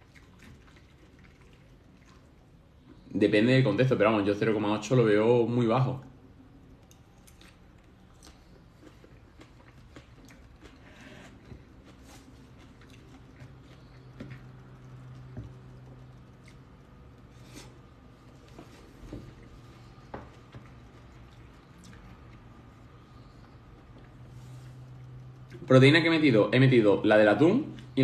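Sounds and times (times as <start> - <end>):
faint chewing: 0.0 - 3.1, 6.4 - 26.1
fork scraping bamboo bowl: 17.2 - 17.8.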